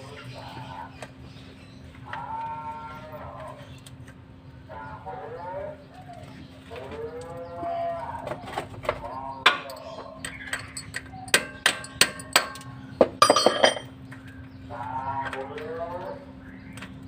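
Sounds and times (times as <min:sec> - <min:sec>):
metallic ringing: 0:09.7 - 0:13.9
hammer strikes on metal: 0:10.5 - 0:13.6.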